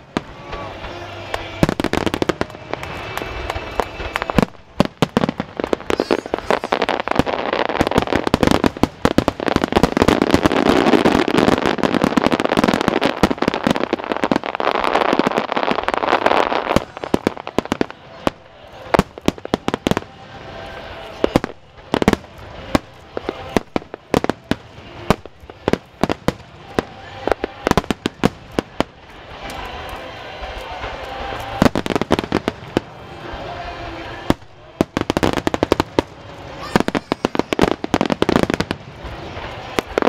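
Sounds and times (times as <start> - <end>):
fireworks bangs and pops: 0.0 - 40.0.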